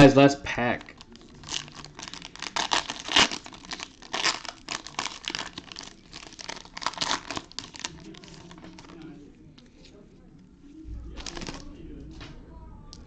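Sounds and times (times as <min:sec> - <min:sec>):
card pack wrapper crinkling: 0:00.8 - 0:09.1, 0:11.2 - 0:11.7.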